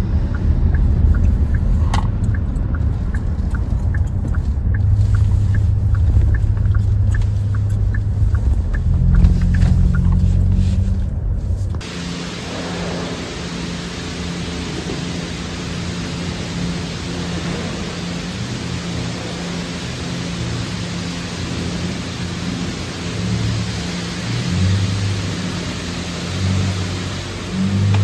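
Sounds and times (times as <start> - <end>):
turn signal clicking: 0.0 - 11.8, 27.8 - 28.0
car engine and road noise: 0.0 - 28.0
steady hiss: 0.7 - 28.0.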